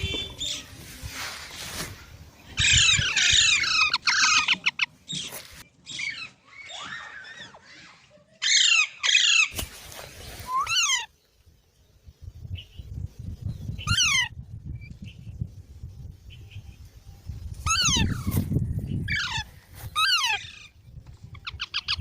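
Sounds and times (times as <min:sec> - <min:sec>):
parrot squawking: 0:02.6 - 0:04.9.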